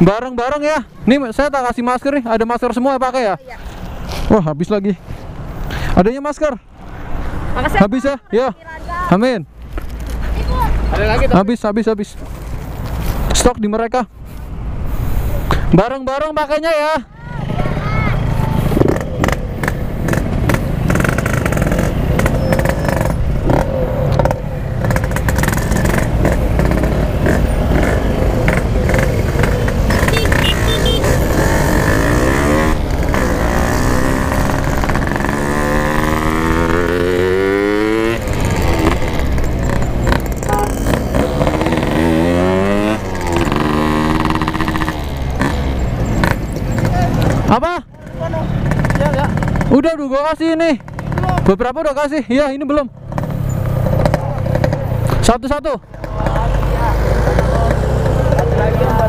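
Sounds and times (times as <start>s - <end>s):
motorcycle engine revving: 17.4s - 59.0s.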